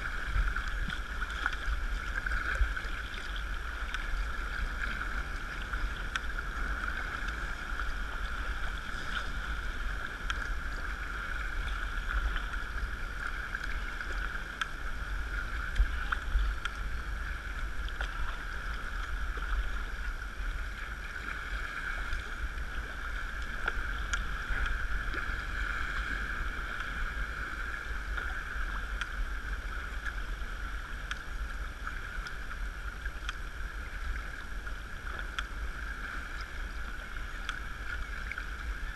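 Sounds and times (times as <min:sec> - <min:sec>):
water lapping against hull: 0:00.0 - 0:38.9
wind rumble on microphone: 0:00.0 - 0:38.9
faint ticks: 0:00.4 - 0:20.6, 0:21.3 - 0:38.8.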